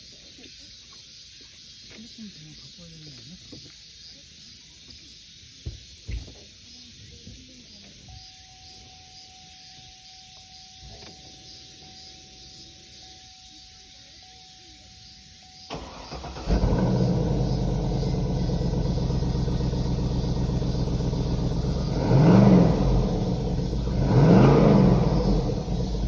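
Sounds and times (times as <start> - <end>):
car engine cranking and starting: 15.6 - 26.0
car engine idling: 15.7 - 26.0
car engine revving: 15.7 - 26.0.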